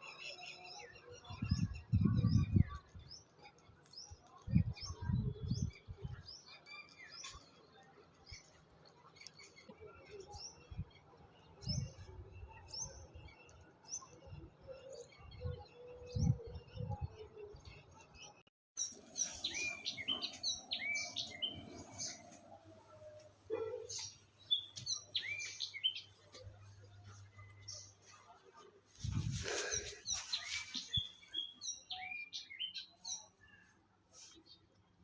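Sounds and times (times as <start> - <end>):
wild birds chirping: 18.8 - 33.8.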